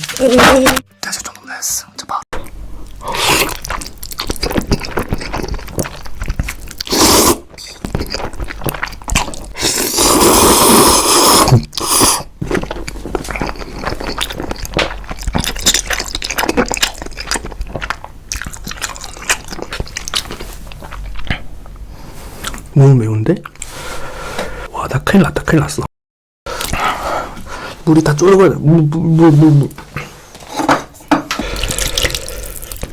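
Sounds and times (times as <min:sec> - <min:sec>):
crunchy bites and chewing: 0:02.4 - 0:10.4, 0:11.0 - 0:21.4.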